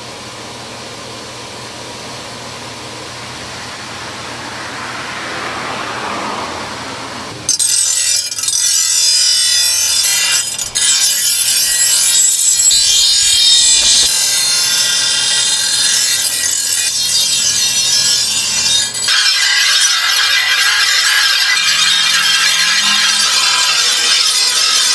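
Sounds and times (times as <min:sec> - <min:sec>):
tool scraping and rasping: 0:07.6 - 0:24.9.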